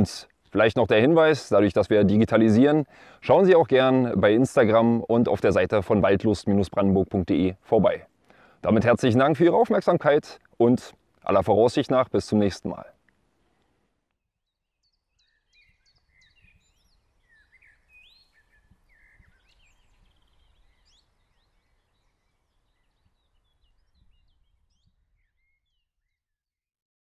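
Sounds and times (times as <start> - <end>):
birds chirping and whistling: 14.7 - 26.2.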